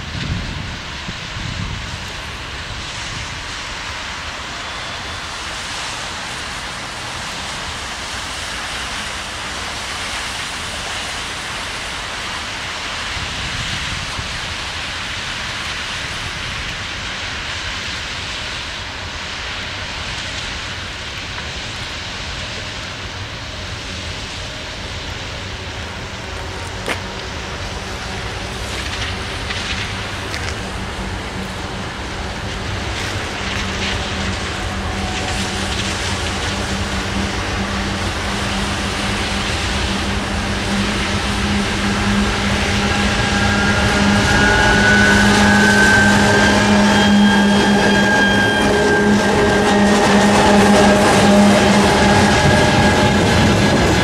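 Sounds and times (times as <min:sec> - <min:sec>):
diesel locomotive engine: 0:00.0 - 0:54.0
train wheels rolling on rails: 0:00.0 - 0:54.0.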